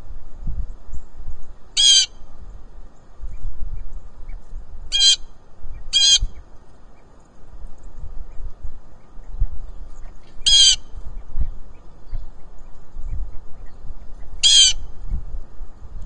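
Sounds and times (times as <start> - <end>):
blue jay harsh calls: 1.8 - 2.3, 4.9 - 6.5, 10.0 - 11.1, 14.0 - 15.0.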